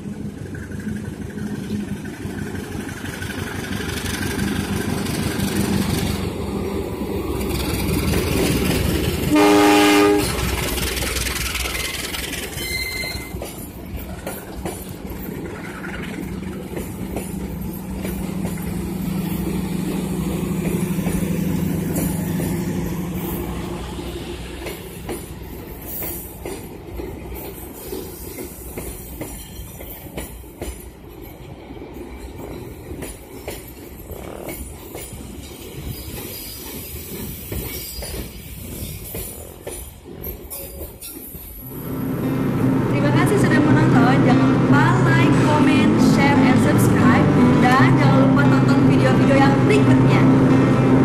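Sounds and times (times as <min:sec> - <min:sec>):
steady train rumble: 0:00.0 - 0:51.0
train wheels clattering on bridge: 0:07.2 - 0:09.4, 0:10.1 - 0:41.6
locomotive horn blast: 0:09.2 - 0:10.8, 0:41.7 - 0:51.0.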